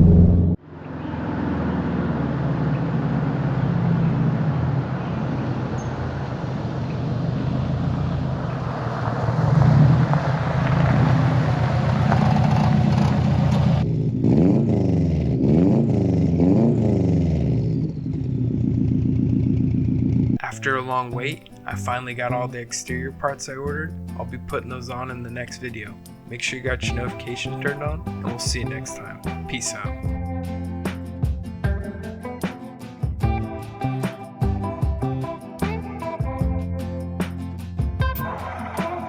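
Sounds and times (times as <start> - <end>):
car engine revving: 0.0 - 20.5
car engine droning: 0.0 - 23.1.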